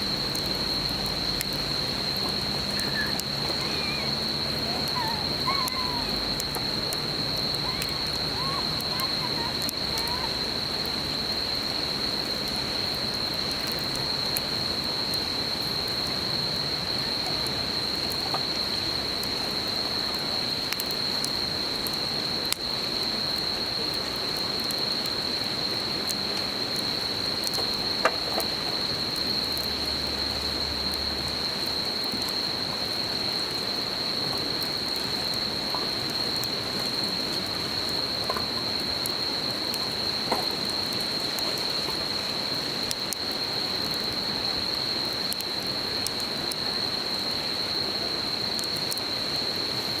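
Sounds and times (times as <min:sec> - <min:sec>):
campfire crackling: 0:00.0 - 0:50.0
insects trilling: 0:00.0 - 0:50.0
river murmuring: 0:01.7 - 0:10.9.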